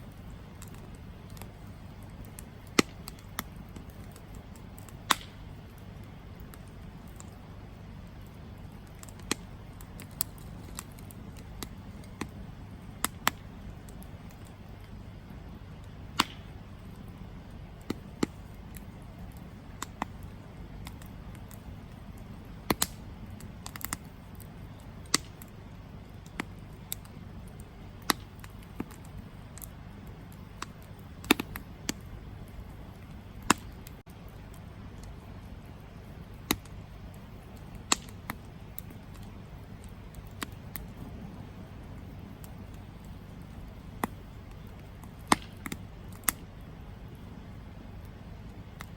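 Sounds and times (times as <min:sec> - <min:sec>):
campfire crackling: 0:00.0 - 0:48.9
soft low rush: 0:31.6 - 0:45.2.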